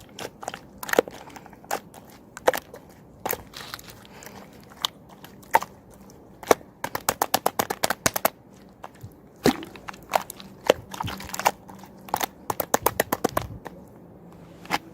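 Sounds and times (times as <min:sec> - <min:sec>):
slime popping and clicking: 0:06.4 - 0:08.4.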